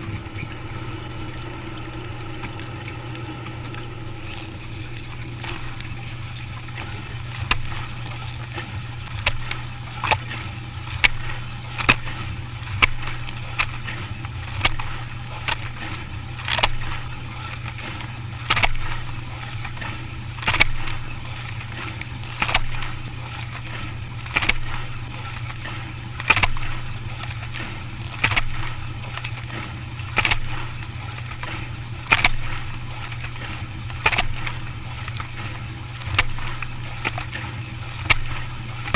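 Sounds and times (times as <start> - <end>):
dishwasher pump hum: 0.0 - 38.9
water splashing: 0.0 - 38.9.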